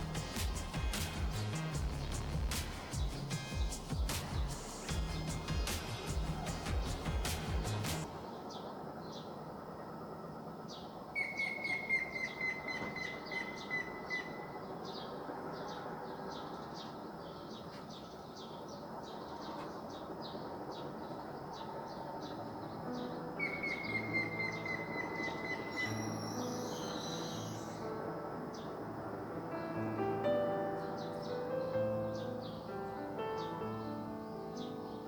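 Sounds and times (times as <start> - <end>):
outdoor background noise: 0.0 - 35.0
birds chirping: 10.7 - 28.8, 29.8 - 35.0.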